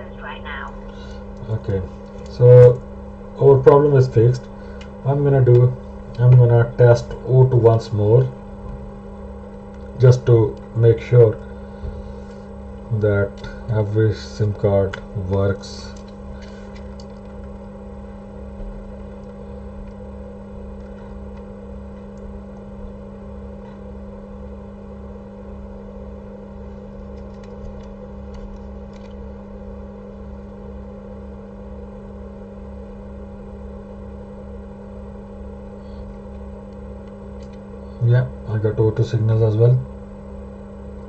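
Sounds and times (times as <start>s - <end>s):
low pulsing throb: 0.0s - 16.4s
low electrical hum: 0.0s - 41.0s.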